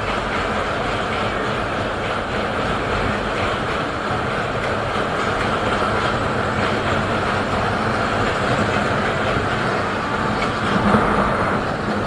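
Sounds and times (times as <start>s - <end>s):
train rolling along track: 0.0s - 12.0s.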